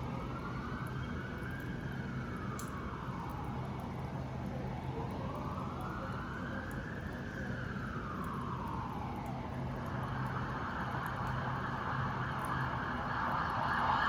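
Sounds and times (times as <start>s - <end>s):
emergency siren wailing: 0.0s - 14.0s.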